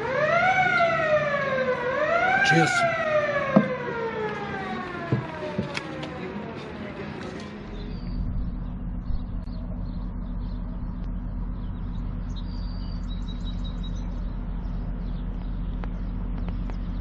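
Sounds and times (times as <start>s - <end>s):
small birds chirping: 7.4s - 17.0s.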